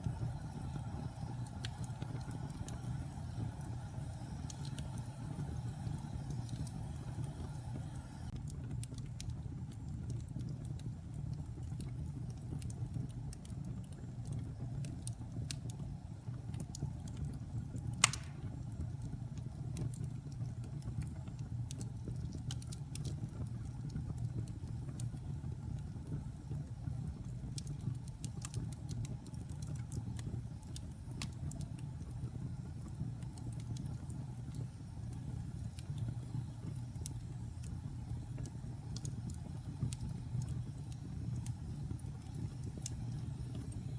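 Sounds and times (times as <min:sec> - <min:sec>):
wood fire burning: 0:00.0 - 0:43.9
sharp loud pop of fire: 0:18.0 - 0:18.5.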